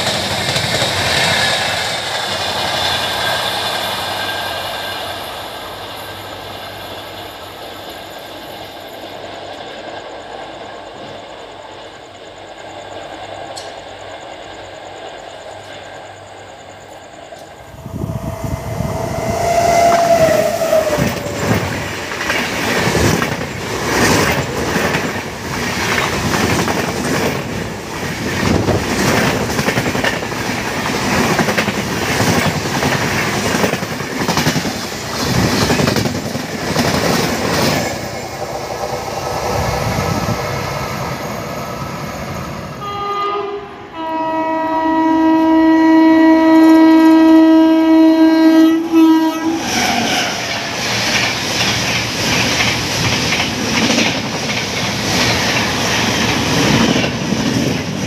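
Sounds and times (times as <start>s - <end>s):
electric train horn blast: 17.6s - 21.3s, 42.7s - 50.4s
short train toot: 17.6s - 21.5s, 42.7s - 50.7s
locomotive horn: 17.9s - 21.3s, 42.8s - 50.4s
train coaches clattering over rail joints: 19.8s - 40.2s, 49.7s - 58.0s.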